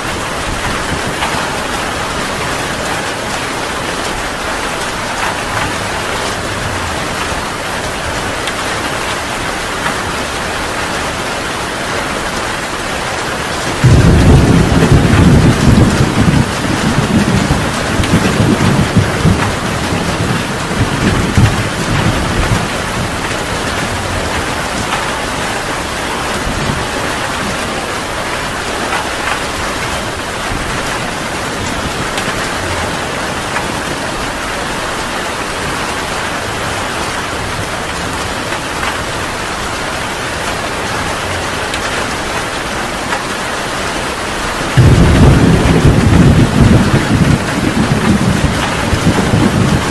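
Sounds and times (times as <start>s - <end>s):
heavy rain falling: 0.0s - 49.9s
rolling thunder: 13.6s - 28.6s, 44.7s - 49.9s.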